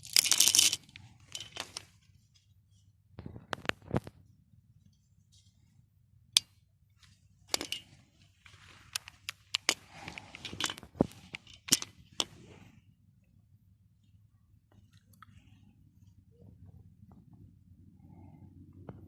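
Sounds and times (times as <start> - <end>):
faint rustle: 6.9 - 13.0.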